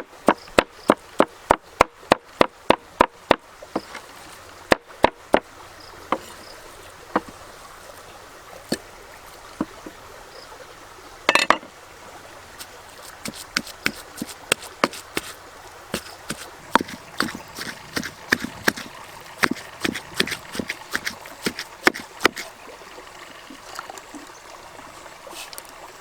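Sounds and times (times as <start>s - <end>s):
faint steady hiss: 0.0s - 26.0s
sharp knocks and taps: 13.0s - 15.4s, 16.0s - 22.5s.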